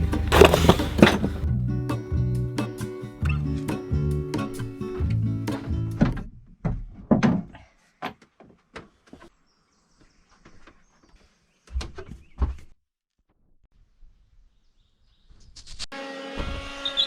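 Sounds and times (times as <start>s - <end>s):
heavy thuds: 0.0s - 1.5s
music: 0.0s - 6.2s.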